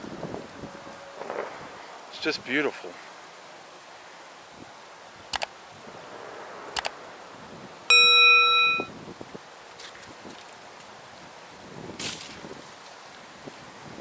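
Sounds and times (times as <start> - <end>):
metallic chime ding: 7.9 - 8.9.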